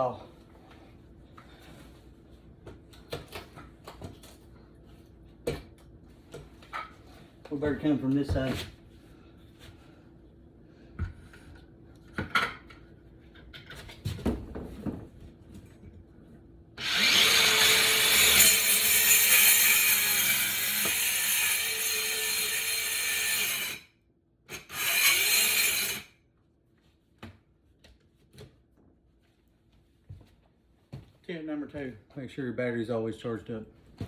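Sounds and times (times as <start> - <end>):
power saw cutting wood flooring: 16.8 - 23.8, 24.5 - 26.1.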